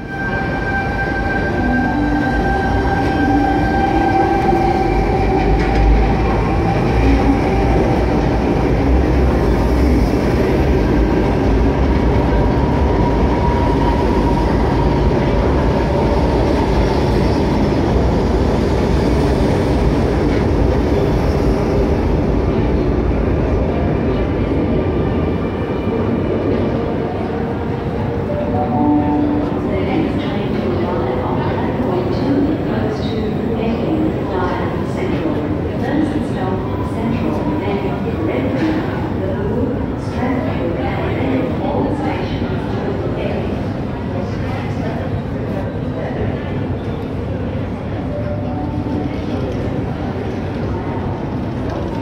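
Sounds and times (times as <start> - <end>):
train wheels rumbling on rails: 0.0 - 28.3.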